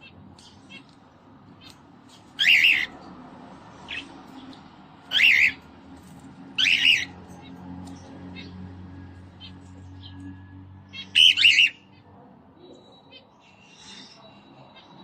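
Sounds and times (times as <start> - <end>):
cockatiel calling: 2.4 - 3.0, 5.1 - 5.6, 6.6 - 7.2, 11.0 - 11.8
soft bird chirps: 12.6 - 15.0.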